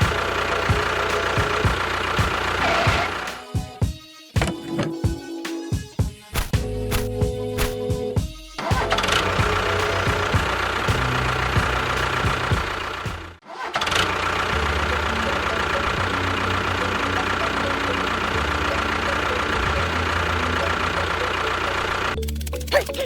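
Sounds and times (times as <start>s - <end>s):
engine running: 0.0s - 3.5s, 8.7s - 23.0s.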